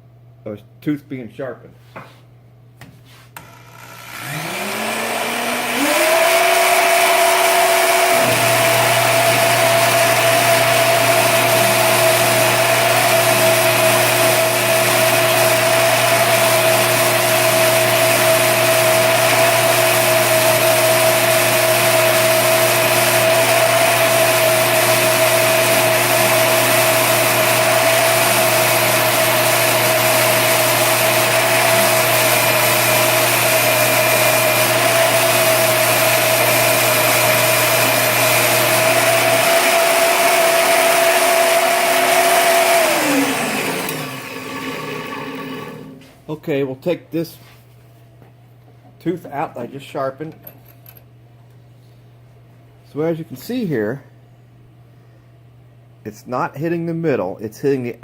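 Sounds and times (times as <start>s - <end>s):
electric drill motor whine: 3.4s - 46.0s.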